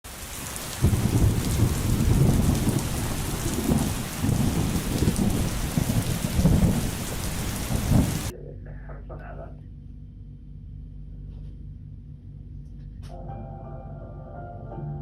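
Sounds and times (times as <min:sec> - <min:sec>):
heavy rain hissing: 0:00.1 - 0:08.3
deep rumbling: 0:00.7 - 0:14.4.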